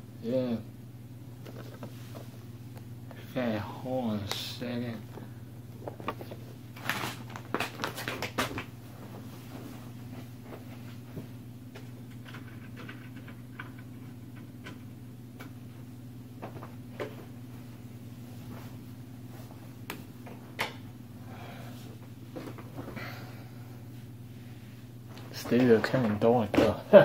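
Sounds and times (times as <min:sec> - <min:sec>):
low electrical hum: 0:00.0 - 0:27.0
objects rustling and clicking: 0:01.4 - 0:02.4, 0:05.0 - 0:08.7.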